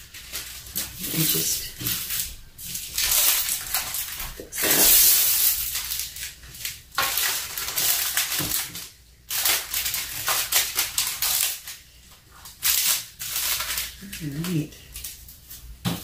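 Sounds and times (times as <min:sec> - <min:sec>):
plastic sheet crinkling: 0:00.0 - 0:16.0.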